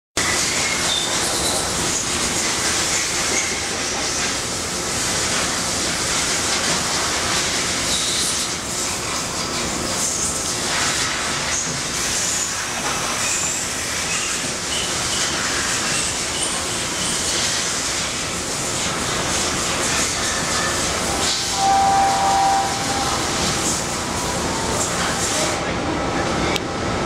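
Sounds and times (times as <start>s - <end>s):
machining center rushing: 20.8s - 26.6s
short high squeals: 21.4s - 23.4s.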